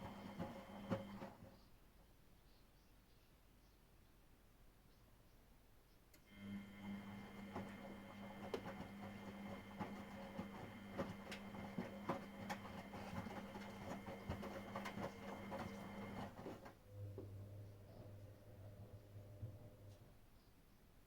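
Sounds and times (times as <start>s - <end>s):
washing machine motor hum: 0.0s - 1.6s, 6.2s - 20.2s.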